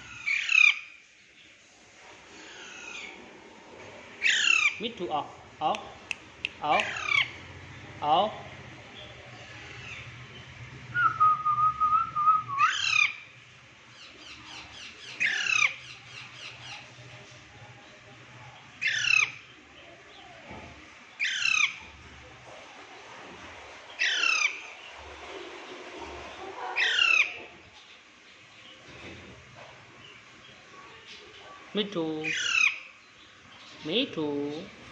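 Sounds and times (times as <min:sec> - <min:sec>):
parrot squawking: 0:04.2 - 0:04.8, 0:06.7 - 0:07.4, 0:12.6 - 0:13.2, 0:14.5 - 0:16.0, 0:26.8 - 0:27.4, 0:32.3 - 0:32.8.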